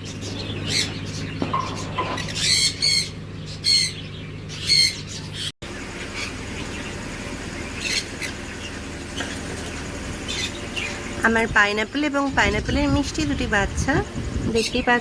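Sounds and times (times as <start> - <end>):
parrots squawking: 0.0 - 7.0, 7.6 - 11.2.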